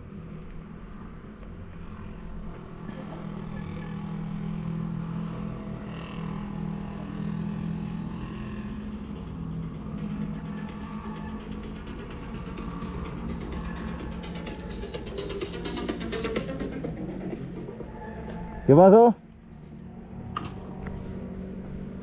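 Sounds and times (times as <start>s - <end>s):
motorcycle engine droning: 0.0s - 22.0s.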